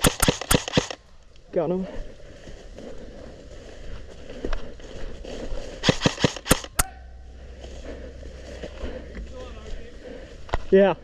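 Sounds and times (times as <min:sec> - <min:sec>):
airsoft gun shots: 0:00.0 - 0:01.0, 0:05.8 - 0:07.0.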